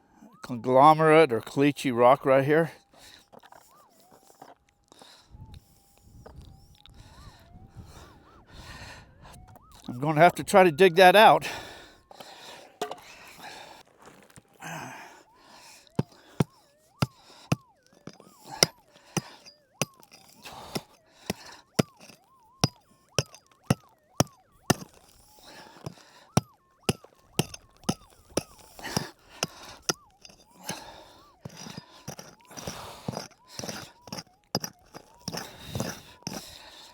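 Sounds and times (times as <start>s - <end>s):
digging tool striking rock: 12.8s - 13.1s, 16.0s - 36.9s
scraping of loose dirt: 15.8s - 36.9s.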